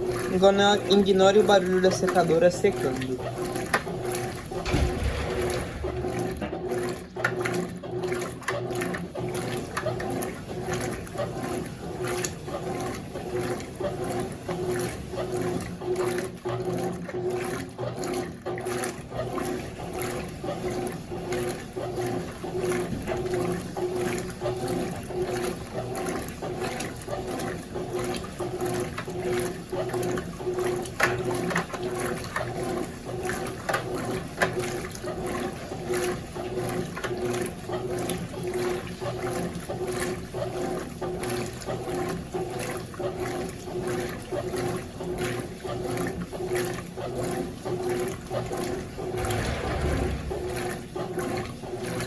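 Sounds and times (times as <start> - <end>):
clothes dryer humming: 0.0 - 8.0, 48.6 - 51.2
washing machine water sloshing: 0.0 - 52.0.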